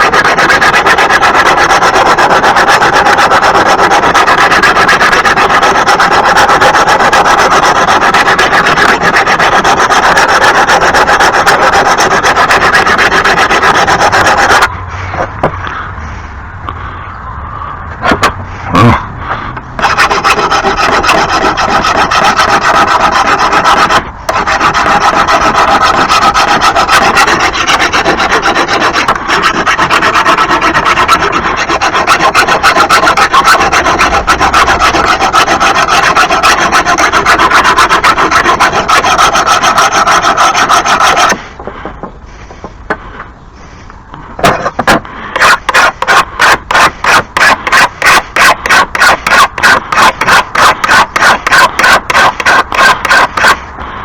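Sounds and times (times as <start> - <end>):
file rasping along a blade: 0.0 - 14.7, 19.8 - 41.5, 45.4 - 53.6.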